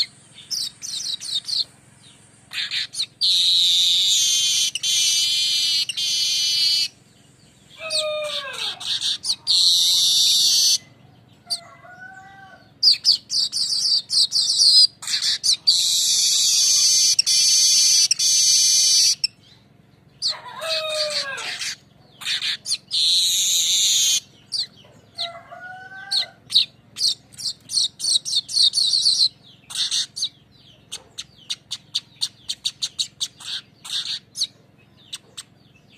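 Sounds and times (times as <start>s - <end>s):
bird buzzing trills: 0.0s - 35.9s
bird falling call: 7.7s - 9.2s.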